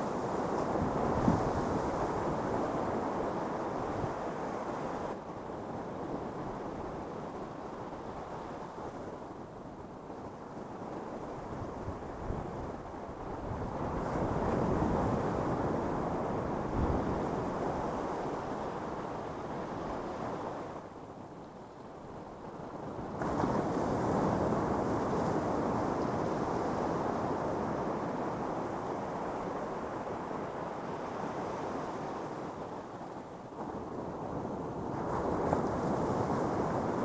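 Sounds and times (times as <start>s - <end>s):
ocean waves breaking on sand: 22.8s - 37.0s.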